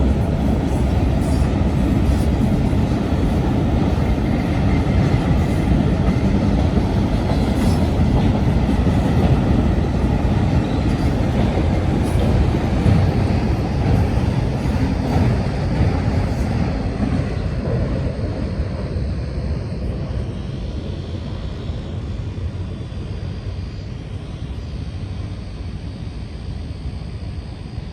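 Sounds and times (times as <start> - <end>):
freight cars rolling on rails: 0.0 - 18.4.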